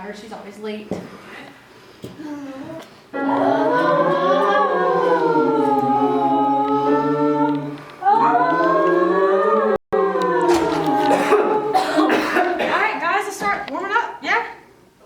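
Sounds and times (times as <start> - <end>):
group singing vocal warm-up: 3.1 - 12.7.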